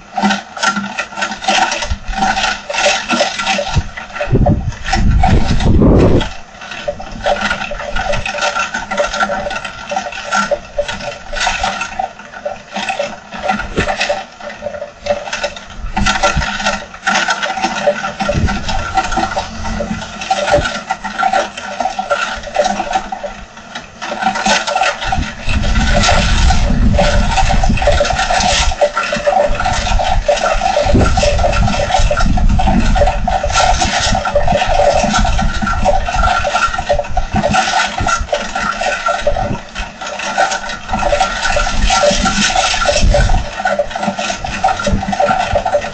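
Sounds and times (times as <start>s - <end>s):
wind gusts rumbling: 3.7s - 6.4s, 18.1s - 21.4s, 25.0s - 28.9s, 29.5s - 36.4s
heavy rain pouring: 18.0s - 22.0s.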